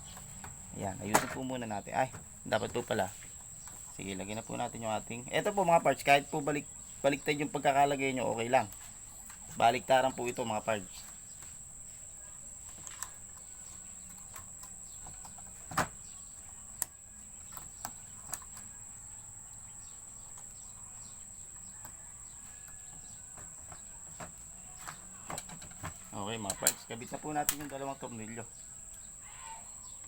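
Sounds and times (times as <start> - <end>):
wire connectors clicking onto terminals: 26.4 - 28.0.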